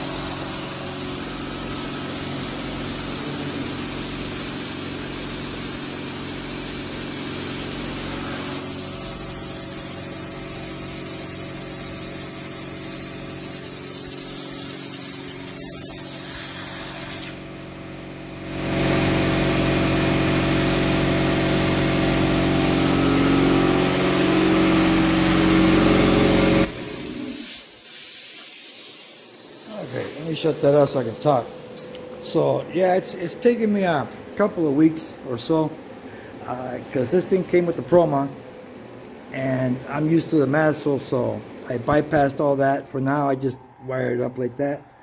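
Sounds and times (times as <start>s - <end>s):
plasma cutter hissing: 0.0s - 17.5s, 18.4s - 32.0s
steady hum: 0.0s - 45.0s.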